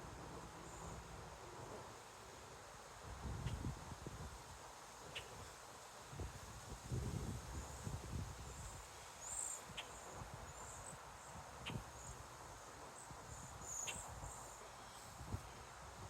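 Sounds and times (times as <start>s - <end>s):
crickets chirping: 0.5s - 1.1s, 7.6s - 15.2s.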